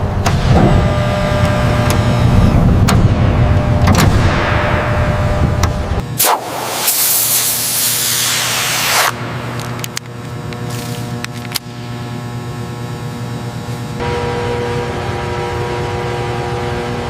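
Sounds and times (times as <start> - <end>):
high humming tone: 0.0 - 17.0
steady mechanical hum: 0.0 - 17.0
loud spray-like hiss: 6.2 - 9.2.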